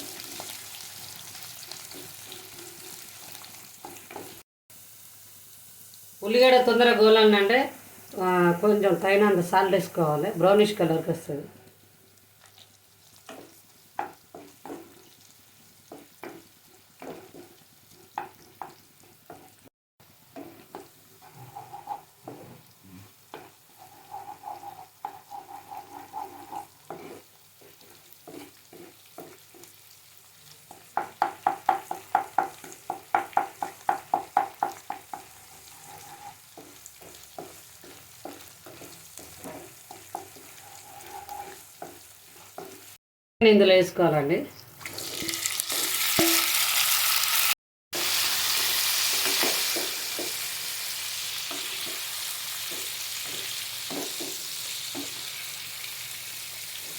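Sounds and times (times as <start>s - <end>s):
food sizzling in oil: 0.0s - 11.1s, 11.7s - 43.0s, 44.6s - 56.9s
spatula scraping and knocking pan: 1.8s - 4.4s, 13.2s - 15.2s, 15.9s - 19.6s, 20.3s - 22.6s, 23.3s - 29.8s, 30.7s - 43.0s, 48.0s - 50.6s, 51.4s - 55.4s.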